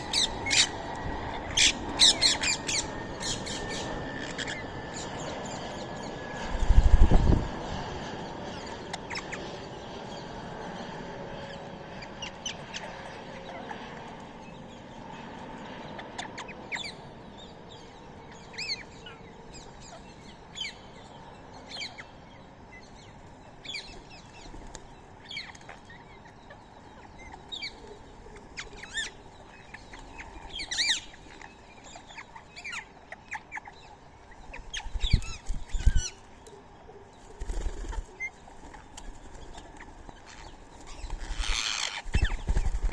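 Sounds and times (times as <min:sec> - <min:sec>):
birds chirping: 0:00.0 - 0:42.9.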